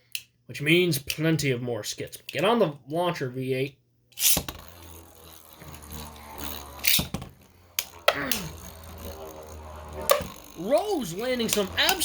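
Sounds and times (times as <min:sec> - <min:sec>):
spinning tops clacking together: 0:04.2 - 0:12.0
spinning tops launched with zipping hiss: 0:04.2 - 0:12.0
spinning tops whirring in plastic stadium: 0:04.2 - 0:12.0.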